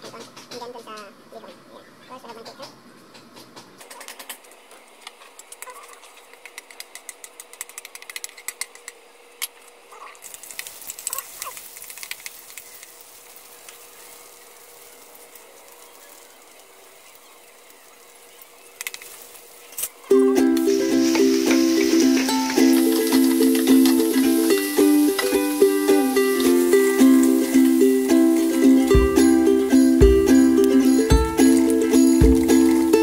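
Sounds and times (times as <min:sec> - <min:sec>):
meat sizzling in hot oil: 0:10.2 - 0:19.7, 0:20.5 - 0:30.0
ukulele music: 0:20.1 - 0:33.0.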